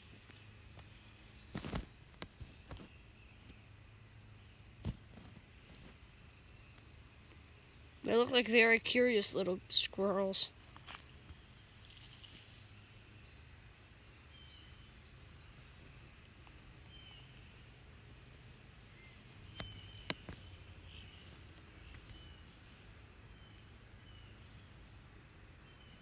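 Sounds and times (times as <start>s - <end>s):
low steady hum: 0.0s - 26.0s
sharp clicks: 19.5s - 20.4s.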